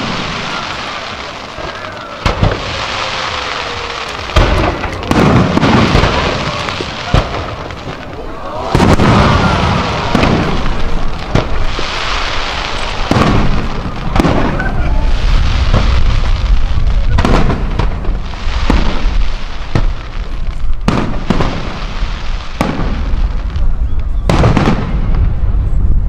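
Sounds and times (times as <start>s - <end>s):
firework shells bursting with bangs: 0.0s - 25.4s
dense crackling hiss: 0.0s - 26.0s.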